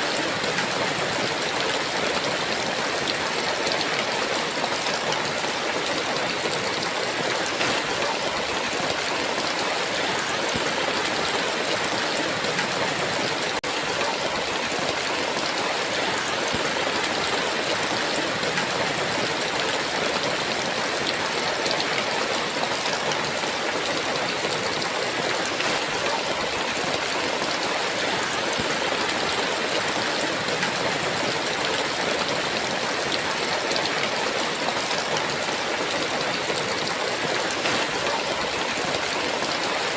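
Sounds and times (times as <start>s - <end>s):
heavy rain hiss: 36.4s - 39.9s.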